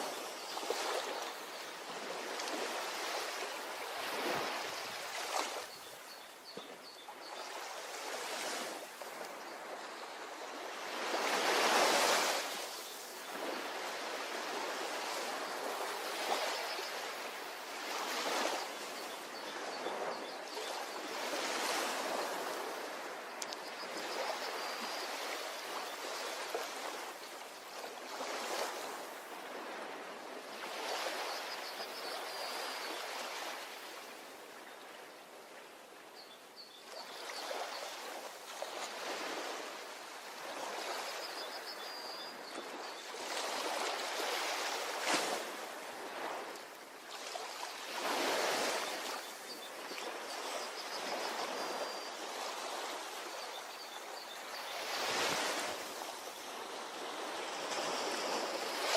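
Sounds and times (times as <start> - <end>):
ocean surf on a beach: 0.0 - 7.0, 7.6 - 36.0.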